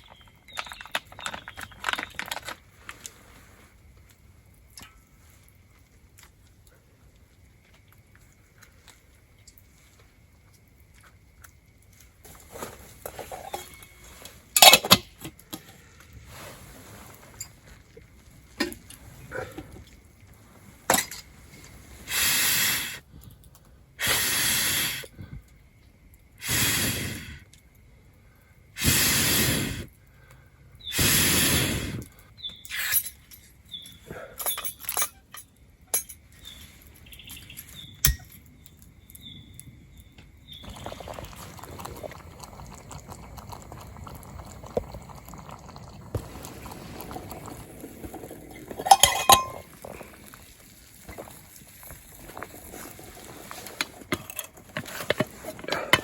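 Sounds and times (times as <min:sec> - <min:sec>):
steady low hiss: 0:02.2 - 0:34.0
cookware clicking and clinking: 0:48.8 - 0:49.7.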